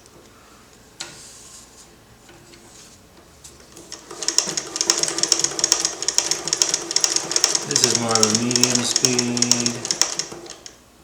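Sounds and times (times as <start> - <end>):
sewing machine stitching clicks: 3.8 - 10.8.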